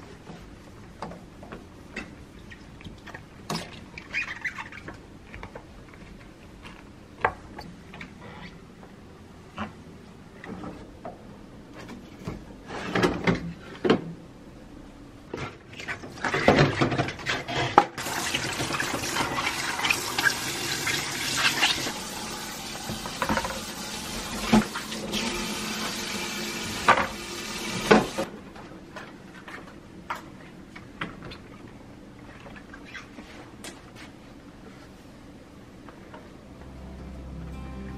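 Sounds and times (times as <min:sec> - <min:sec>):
tap water running into a sink: 0:18.0 - 0:28.3.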